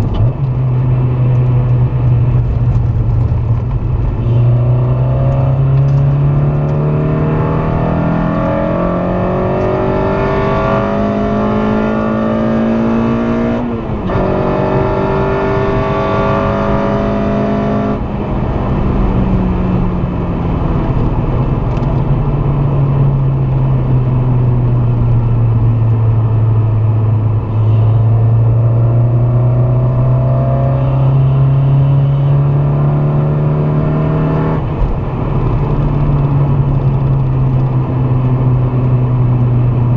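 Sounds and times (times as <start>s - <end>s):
car engine accelerating: 0.0s - 39.9s
road and wind noise: 0.0s - 39.9s.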